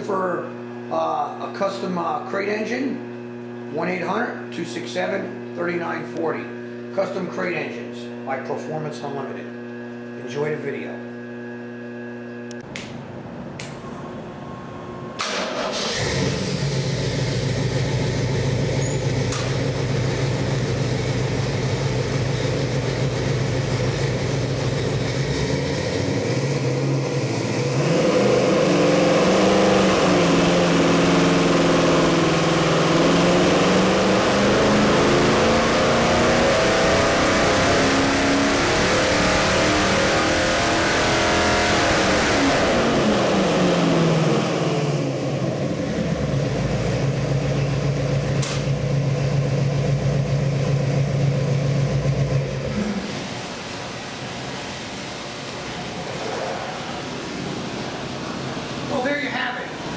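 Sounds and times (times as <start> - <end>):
engine starting and idling: 15.2 - 27.7
engine revving under load: 15.2 - 58.9.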